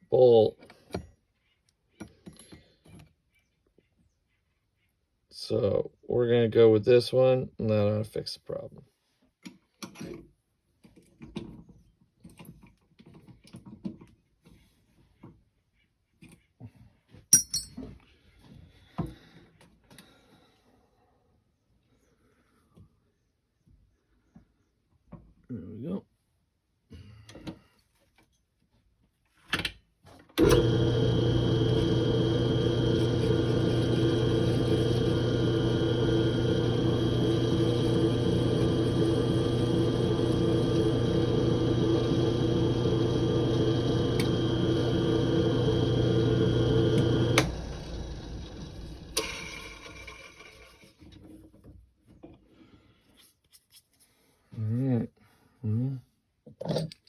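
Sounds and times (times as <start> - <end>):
metal tools clicking and knocking: 17.3 - 17.8
electric drill motor running: 30.4 - 50.6.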